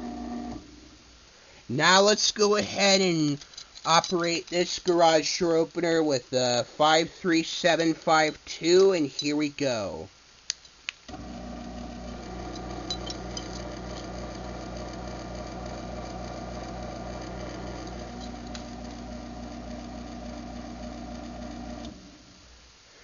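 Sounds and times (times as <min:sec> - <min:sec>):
garage door opener motor hum: 0:00.0 - 0:00.8, 0:11.1 - 0:22.3.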